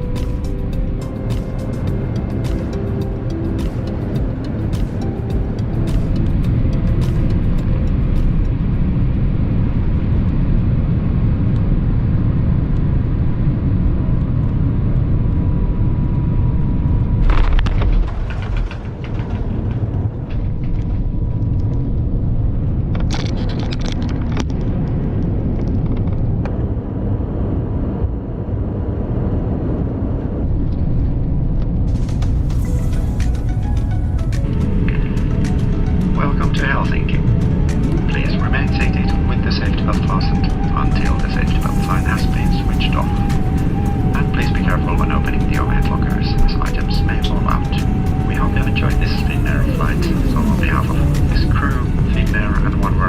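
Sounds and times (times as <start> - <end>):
aircraft cabin rumble: 0.0 - 53.0
loud noisy burst: 34.4 - 53.0.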